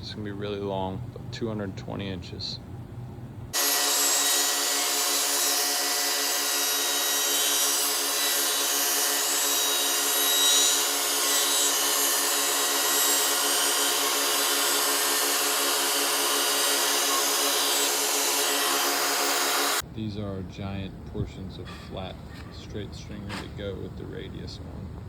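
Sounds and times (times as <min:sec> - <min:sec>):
power machinery running: 0:03.6 - 0:19.8.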